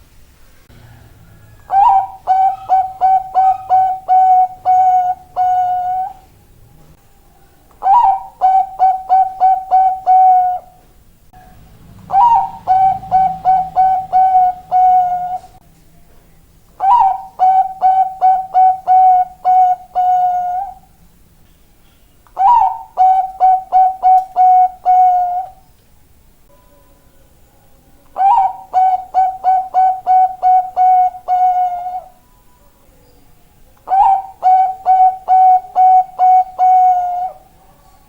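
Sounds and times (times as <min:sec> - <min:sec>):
dove cooing: 0:00.8 - 0:06.3, 0:07.8 - 0:10.8, 0:12.0 - 0:15.6, 0:16.8 - 0:20.9, 0:22.4 - 0:25.6, 0:28.1 - 0:32.2, 0:33.8 - 0:37.6.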